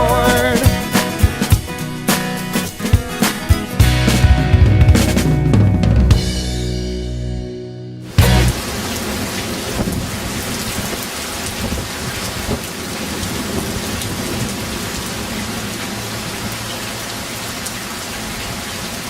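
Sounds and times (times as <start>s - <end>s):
heavy rain: 0.0s - 6.0s, 8.0s - 19.0s
low rumble of thunder: 8.5s - 16.3s.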